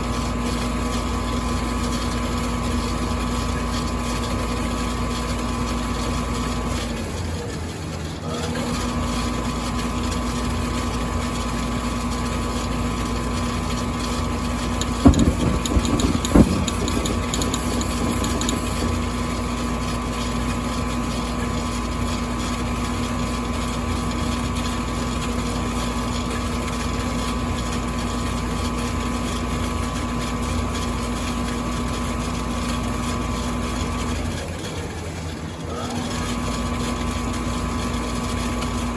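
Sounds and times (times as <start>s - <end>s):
furnace humming: 13.8s - 20.4s.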